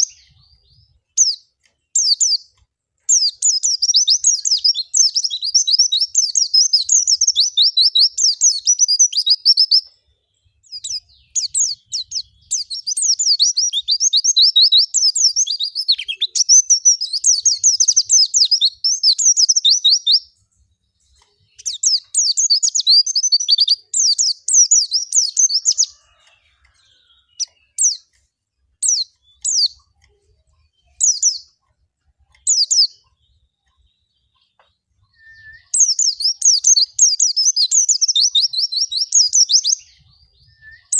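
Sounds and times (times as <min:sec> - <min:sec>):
bird twittering song: 0:00.0 - 0:40.9.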